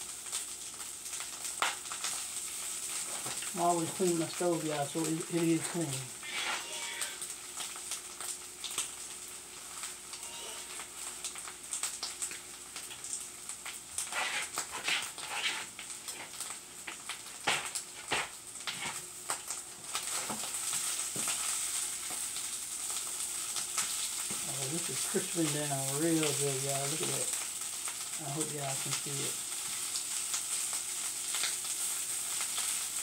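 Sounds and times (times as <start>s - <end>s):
hash sizzling in a skillet: 0.0s - 33.0s
wooden spatula stirring: 14.1s - 16.3s.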